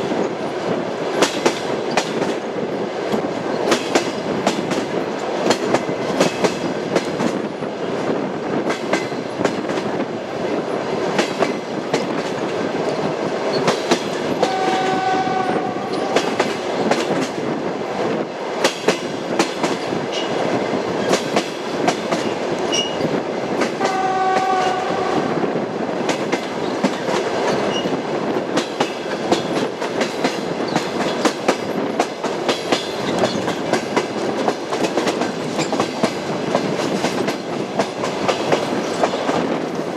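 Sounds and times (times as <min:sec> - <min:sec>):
train rumble: 0:00.0 - 0:39.9
train wheels clacking on rail joints: 0:01.1 - 0:25.3, 0:26.0 - 0:39.9
train horn: 0:14.4 - 0:16.6, 0:23.8 - 0:25.4.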